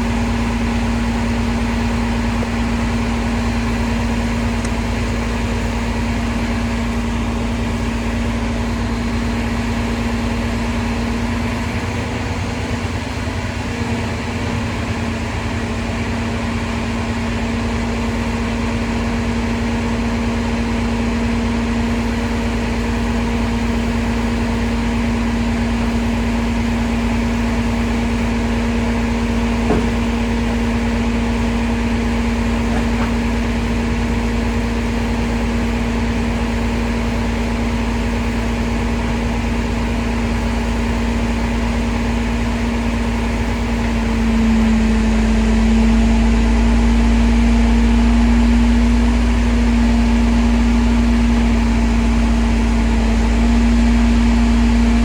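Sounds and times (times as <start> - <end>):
truck engine droning: 0.0 - 55.0.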